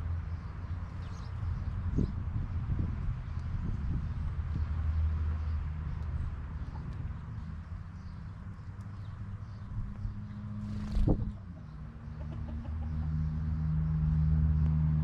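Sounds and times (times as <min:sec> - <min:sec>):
chickens clucking: 0:11.1 - 0:13.2.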